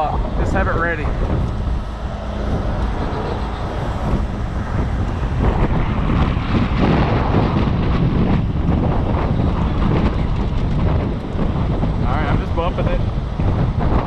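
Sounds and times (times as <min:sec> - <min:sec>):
truck engine running: 0:00.0 - 0:14.0
wind buffeting microphone: 0:00.0 - 0:14.0.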